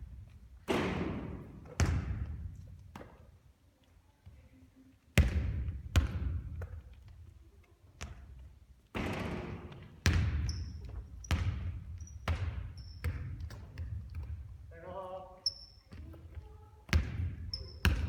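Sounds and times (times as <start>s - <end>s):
basketball bouncing in a hall: 0.0s - 3.4s, 5.1s - 14.7s, 15.4s - 18.0s
shoe squeaks: 10.4s - 13.2s, 15.4s - 16.1s, 17.4s - 18.0s.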